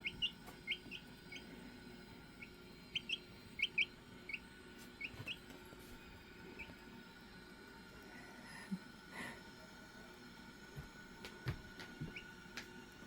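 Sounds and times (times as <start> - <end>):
chickens peeping: 0.0 - 1.7, 2.4 - 4.4, 5.0 - 5.5.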